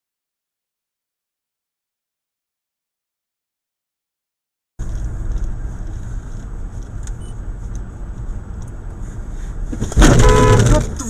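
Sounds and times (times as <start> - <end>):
car engine and road rumble: 4.8 - 11.0.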